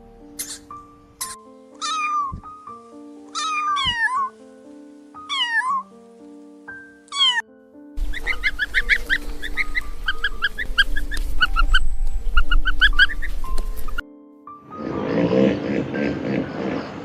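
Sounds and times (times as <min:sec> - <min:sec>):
background music: 0:00.0 - 0:17.0
cat meowing: 0:01.8 - 0:02.5, 0:03.3 - 0:04.3, 0:05.3 - 0:05.8, 0:07.1 - 0:07.4.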